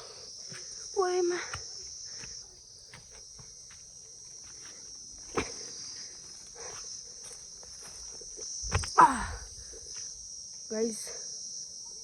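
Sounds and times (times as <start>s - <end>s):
footsteps in sandals on path: 0.0s - 9.0s
insect chorus: 0.0s - 12.0s.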